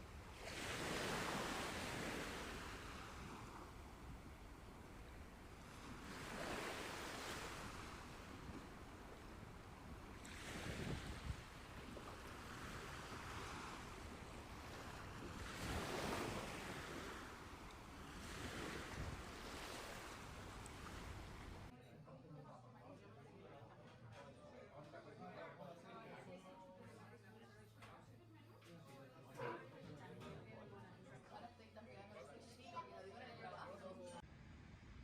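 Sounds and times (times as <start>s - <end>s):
sea waves breaking: 0.0s - 21.7s.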